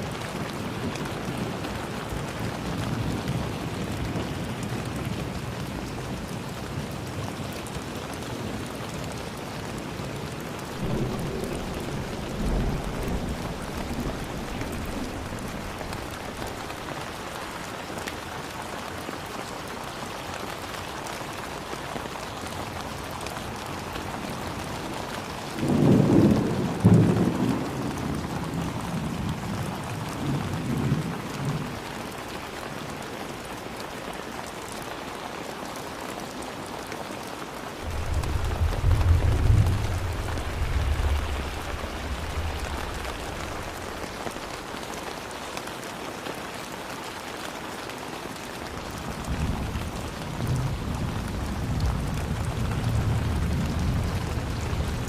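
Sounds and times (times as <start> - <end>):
heavy rain falling: 0.0 - 55.0
thunder rolling: 10.7 - 17.4, 37.8 - 44.8.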